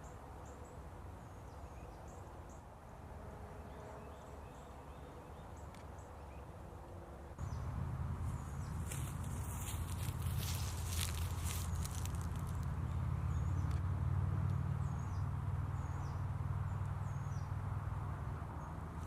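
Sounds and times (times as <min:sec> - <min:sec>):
steady low rumble: 0:07.4 - 0:16.4.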